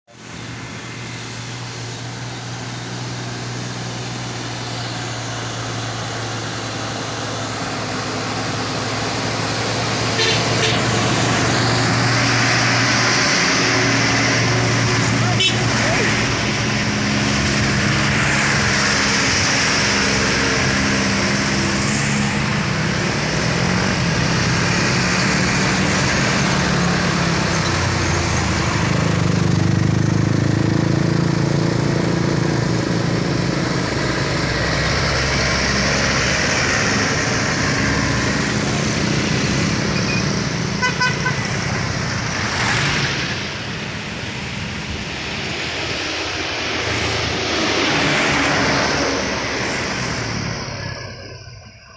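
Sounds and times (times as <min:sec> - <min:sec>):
traffic noise: 0:00.1 - 0:51.9
truck diesel engine labouring: 0:00.1 - 0:51.9
short horn toots: 0:10.1 - 0:11.0.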